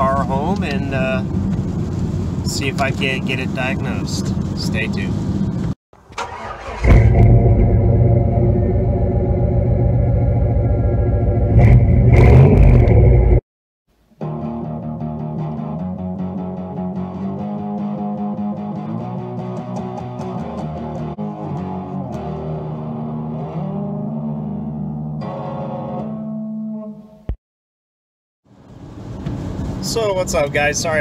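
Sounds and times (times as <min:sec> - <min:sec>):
car engine revving: 0:06.2 - 0:13.4
guitar music with bass: 0:06.7 - 0:13.4, 0:14.2 - 0:27.4.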